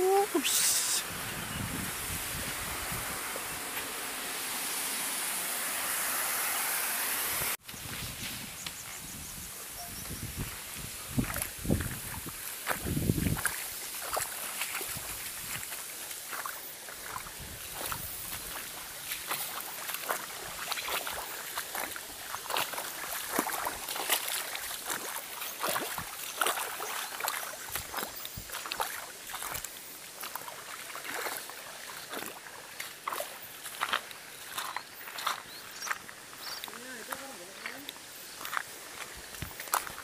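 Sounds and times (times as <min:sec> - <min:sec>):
rushing water: 0:00.0 - 0:08.8, 0:09.5 - 0:40.0
footsteps splashing in water: 0:11.1 - 0:40.0.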